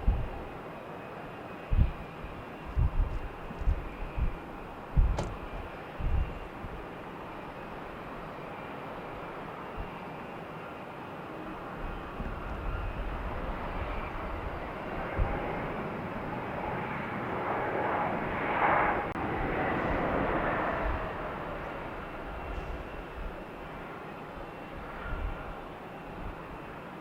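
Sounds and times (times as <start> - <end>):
airplane passing by: 0.0 - 27.0.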